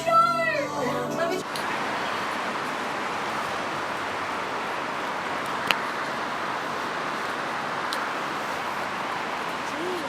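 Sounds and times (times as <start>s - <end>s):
steady rushing noise: 1.2s - 10.0s.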